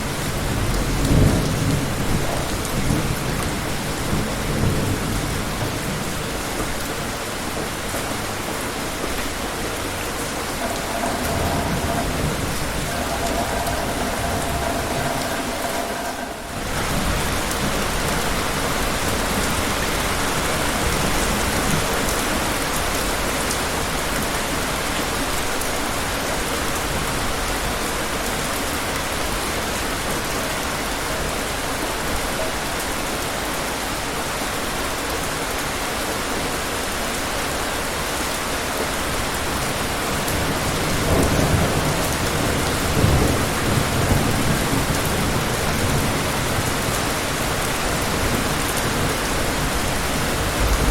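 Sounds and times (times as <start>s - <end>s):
heavy rain falling: 0.0s - 50.9s
distant thunder rumbling: 9.1s - 22.1s, 40.3s - 50.9s.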